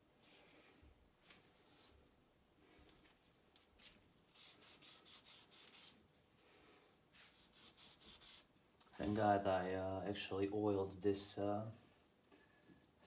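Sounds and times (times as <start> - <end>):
rubbing strokes on metal: 4.3 - 6.0, 7.2 - 8.5.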